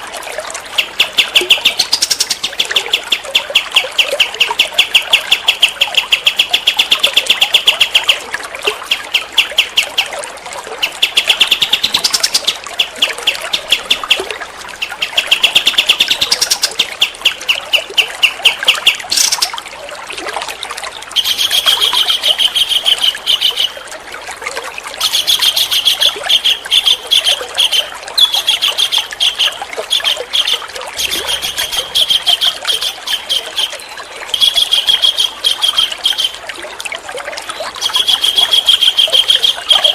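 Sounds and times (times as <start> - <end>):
songbird chirping rapidly: 0.8 - 8.2, 10.8 - 14.2, 14.8 - 19.5, 21.2 - 23.8, 25.0 - 36.4, 37.5 - 39.9.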